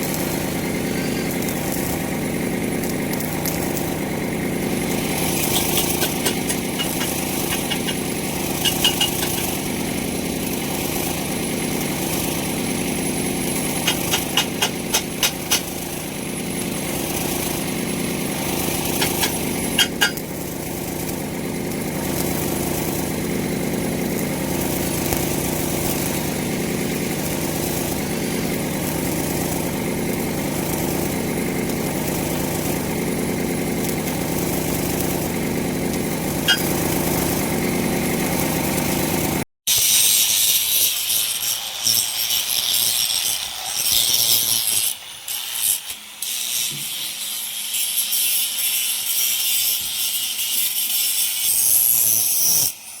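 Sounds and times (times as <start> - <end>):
engine running: 0.0 - 39.4
metal grinding hiss: 0.2 - 1.9, 4.6 - 10.3, 13.4 - 16.0, 18.8 - 20.2.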